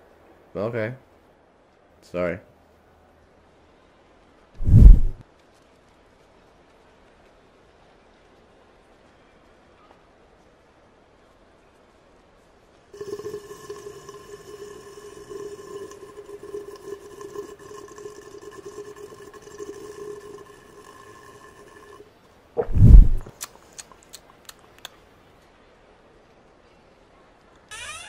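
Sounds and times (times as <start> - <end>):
cartoon slurp: 13.0 - 22.0.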